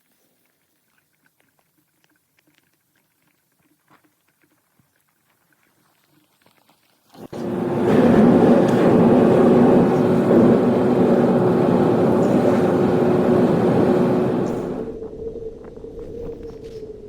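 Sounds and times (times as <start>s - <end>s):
motor running: 7.3s - 14.9s.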